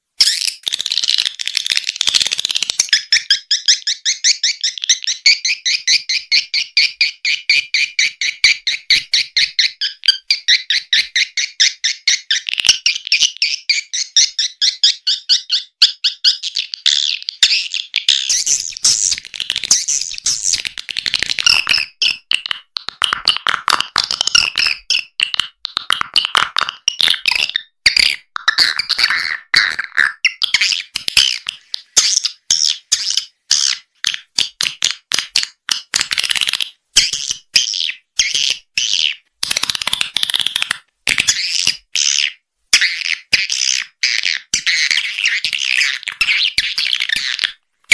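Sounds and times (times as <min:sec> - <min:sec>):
high twittering bird chirps: 0:00.2 - 0:22.4, 0:26.9 - 0:34.3, 0:41.3 - 0:47.6.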